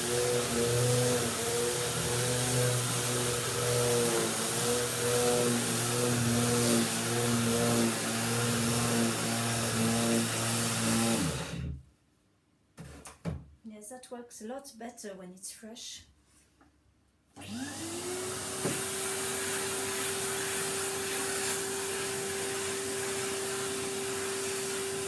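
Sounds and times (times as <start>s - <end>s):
vacuum cleaner running: 0.0s - 11.8s, 17.4s - 25.0s
vacuum motor winding down: 0.0s - 11.8s, 17.4s - 25.0s.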